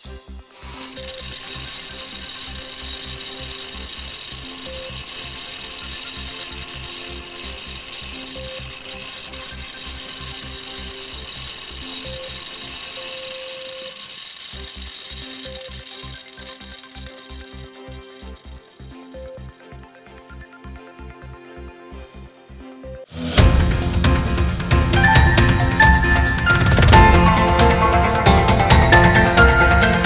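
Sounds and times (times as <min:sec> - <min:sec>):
high-pitched machine whirring: 0:00.0 - 0:20.1
music with steady beat: 0:23.1 - 0:30.0.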